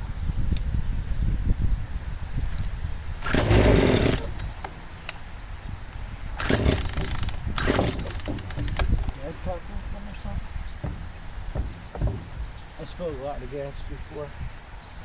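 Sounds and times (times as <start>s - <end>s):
chainsaw recoil starter pulls: 3.2s - 4.6s, 6.4s - 9.0s.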